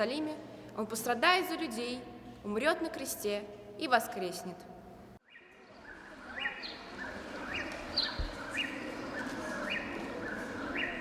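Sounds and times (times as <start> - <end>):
bird chirping: 5.2 - 11.0.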